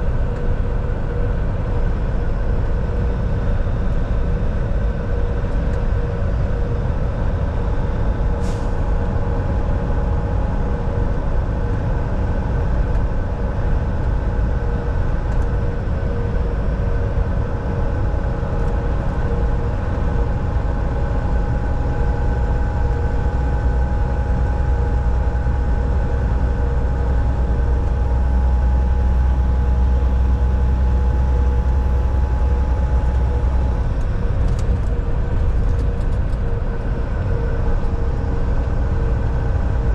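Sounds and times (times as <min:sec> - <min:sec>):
truck engine drone: 0:00.0 - 0:39.9.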